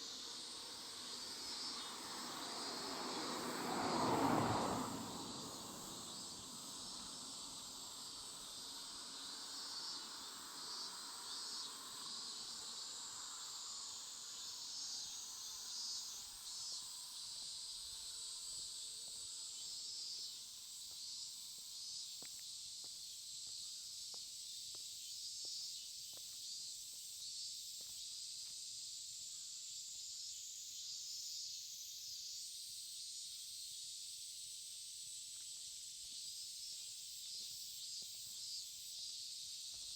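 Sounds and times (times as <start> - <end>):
insects trilling: 0.0 - 39.9
passing vehicle: 0.2 - 8.1.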